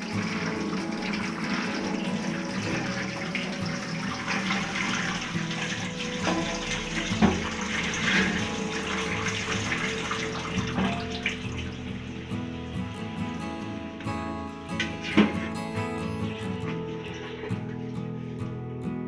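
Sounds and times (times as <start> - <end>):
tap water running into sink: 0.0 - 12.7.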